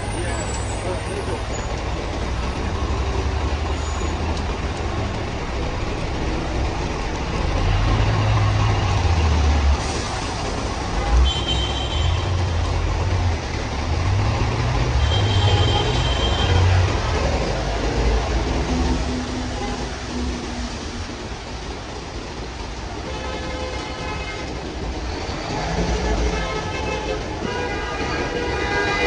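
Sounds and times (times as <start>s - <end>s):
heavy rain on street: 0.0s - 29.0s
heavy traffic rumble: 0.0s - 29.0s.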